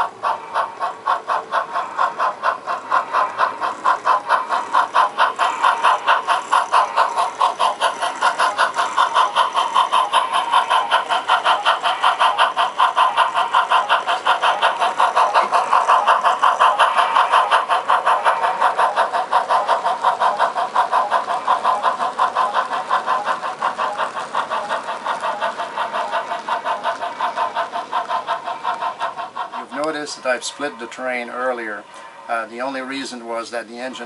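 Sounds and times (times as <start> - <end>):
model steam locomotive chuffing: 0.0 - 34.0.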